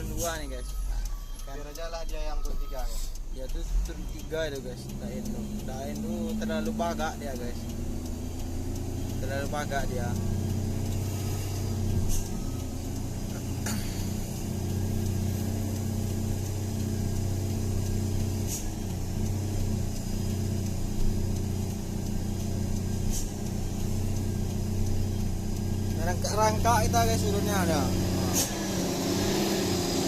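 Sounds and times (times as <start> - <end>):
truck engine droning: 0.0 - 30.0.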